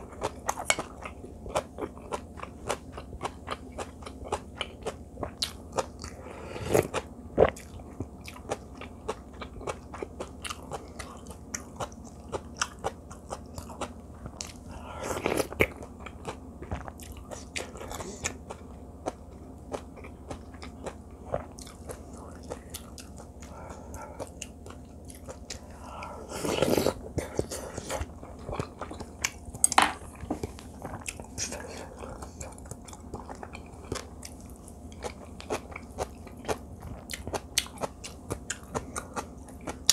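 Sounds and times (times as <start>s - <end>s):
chewing and mouth smacks: 27.2s - 39.9s.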